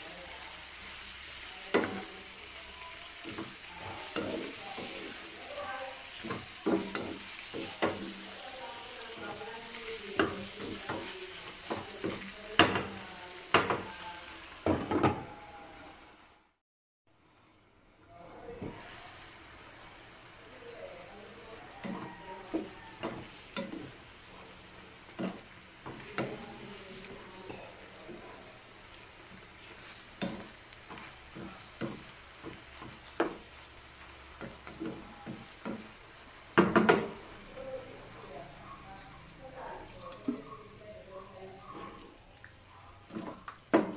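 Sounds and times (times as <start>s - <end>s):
meat sizzling in frying pan: 0.0s - 15.4s, 18.4s - 43.9s
spatula knocking and scraping pan: 1.7s - 2.1s, 3.2s - 8.4s, 10.0s - 13.9s, 14.6s - 15.3s, 21.8s - 24.0s, 25.1s - 28.3s, 29.3s - 33.6s, 34.3s - 37.3s
spatula clattering: 3.2s - 8.4s.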